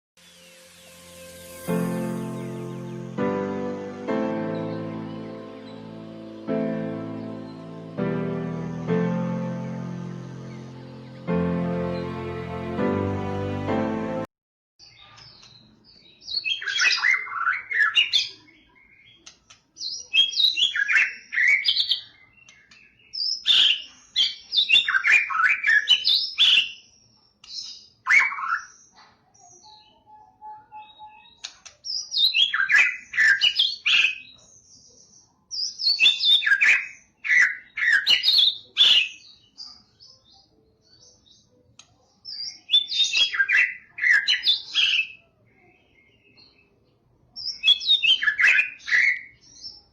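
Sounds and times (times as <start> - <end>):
bird singing whistled phrases: 29.6 - 31.5.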